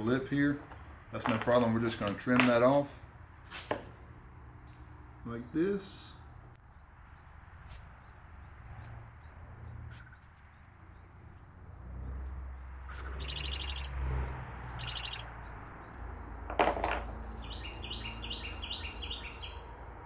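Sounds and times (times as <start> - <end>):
small songbirds chirping: 5.3 - 16.5, 17.1 - 20.0.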